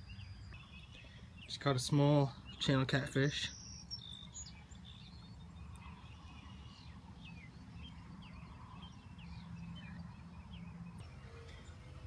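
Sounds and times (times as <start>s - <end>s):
high bird chirps: 2.4s - 11.2s.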